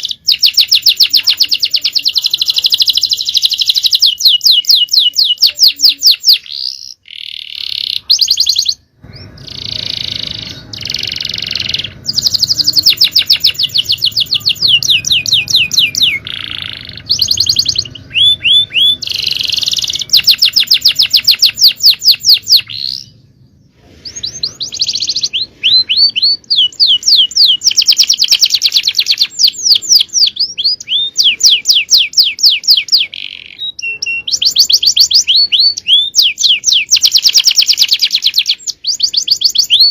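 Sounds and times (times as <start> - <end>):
canary singing rapid trills: 0.0 - 23.2, 24.0 - 39.9.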